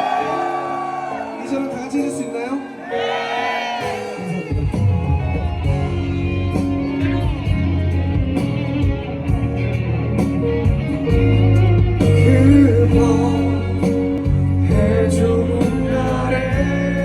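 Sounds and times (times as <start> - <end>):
pop ballad guitar: 3.9 - 17.0.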